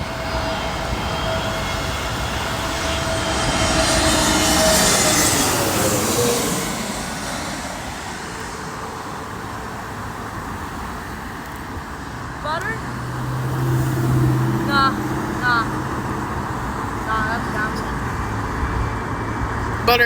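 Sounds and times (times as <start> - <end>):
jet engine whine dropping in pitch: 0.0 - 11.4
jet airliner passing overhead: 0.0 - 20.0.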